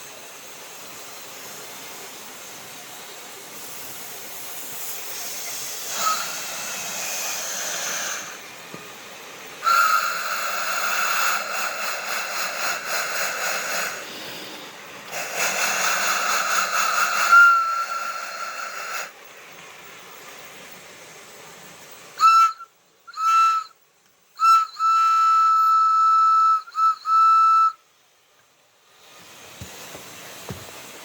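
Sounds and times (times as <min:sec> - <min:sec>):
steam hissing: 0:00.0 - 0:31.0
steam whistle toots: 0:05.0 - 0:08.5, 0:09.6 - 0:14.0, 0:15.2 - 0:19.1, 0:22.2 - 0:23.8, 0:24.4 - 0:27.9.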